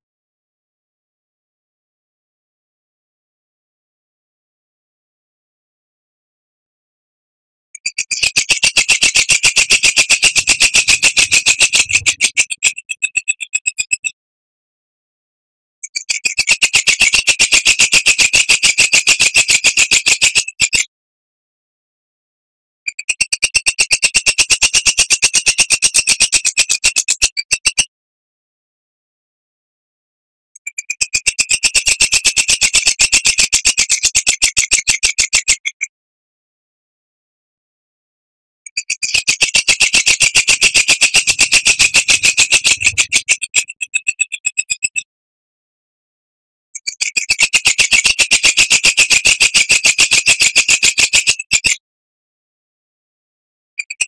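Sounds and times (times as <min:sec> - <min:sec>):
bird rattling chatter: 0:07.9 - 0:13.6, 0:38.8 - 0:44.9.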